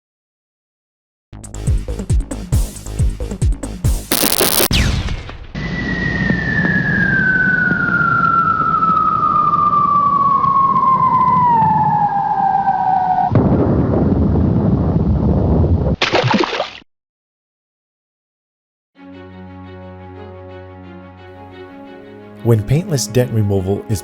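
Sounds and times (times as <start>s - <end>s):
booming hits: 4.1s - 6.6s, 13.3s - 15.5s
falling whistle: 5.6s - 13.3s
heavy rumbling blast: 13.0s - 15.9s.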